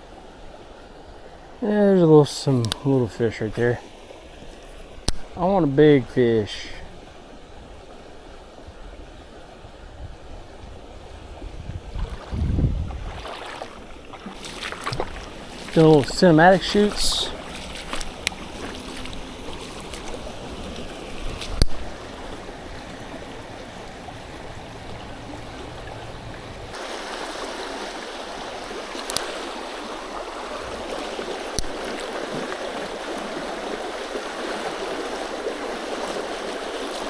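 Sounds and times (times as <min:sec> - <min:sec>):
creek water rushing: 0:00.0 - 0:37.0
deep rumble: 0:11.4 - 0:13.3.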